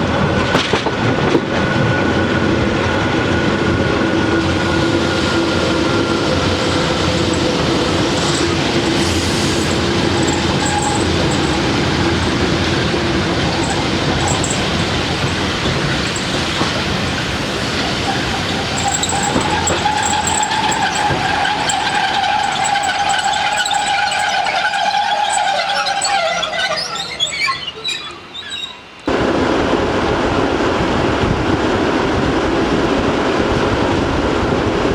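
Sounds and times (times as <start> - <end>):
train rumbling on rails: 0.0 - 34.9
wheel squeal: 4.4 - 29.1
whining tone: 4.6 - 27.4.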